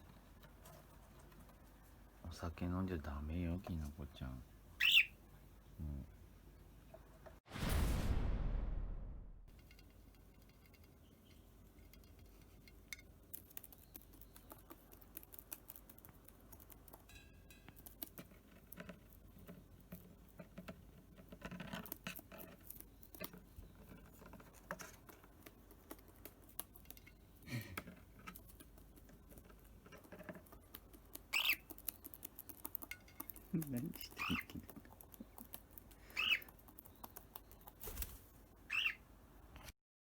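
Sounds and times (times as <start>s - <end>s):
bird beak pecking clicks: 30.6s - 37.8s.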